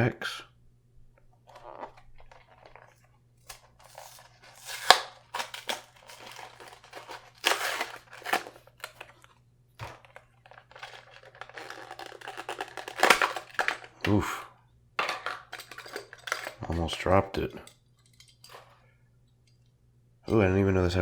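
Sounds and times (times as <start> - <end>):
card tearing: 1.5 - 9.2, 9.8 - 14.3
plastic packaging crinkling: 1.5 - 14.4.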